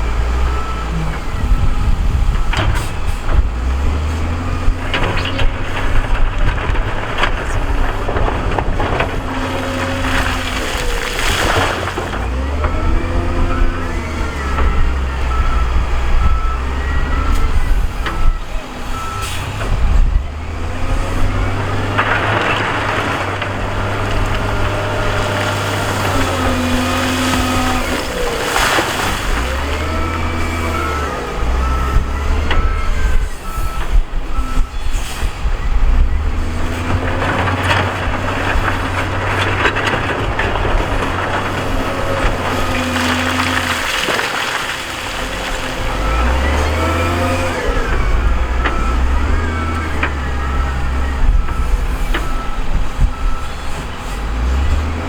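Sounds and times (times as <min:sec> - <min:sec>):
earthmoving machine diesel engines: 0:00.0 - 0:55.0
reversing alarm beeping: 0:12.2 - 0:19.6, 0:24.4 - 0:38.4, 0:45.4 - 0:54.7.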